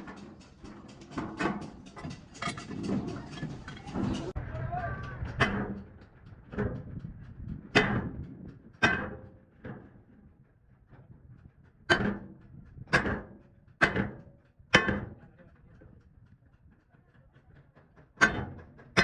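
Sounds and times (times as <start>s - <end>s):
hammer striking metal tank: 0.0s - 7.0s, 7.7s - 8.2s, 8.8s - 9.9s, 11.9s - 12.3s, 12.9s - 15.2s, 18.2s - 19.0s.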